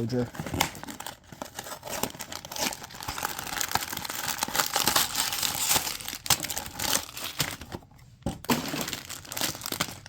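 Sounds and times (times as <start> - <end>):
plastic packaging crinkling: 0.1 - 10.0.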